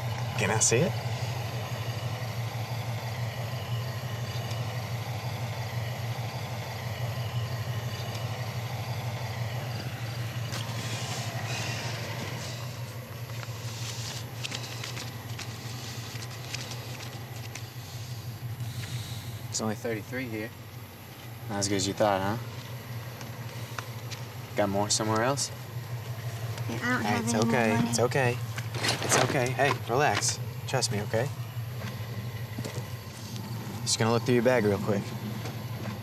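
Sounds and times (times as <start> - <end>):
car engine idling: 0.0 - 36.0
paper money being counted: 13.4 - 17.8.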